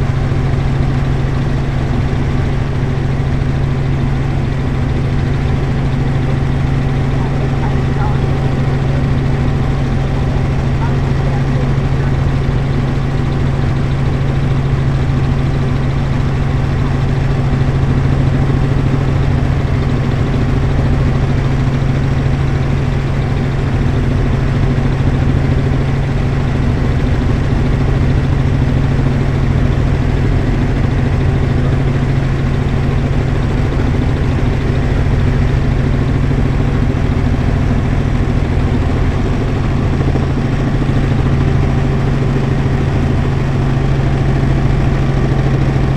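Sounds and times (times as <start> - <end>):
helicopter engine and rotor drone: 0.0 - 45.9.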